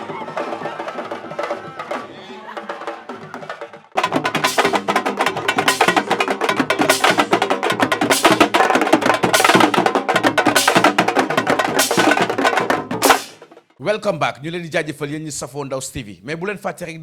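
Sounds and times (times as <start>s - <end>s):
fast percussion music: 0.0s - 13.7s.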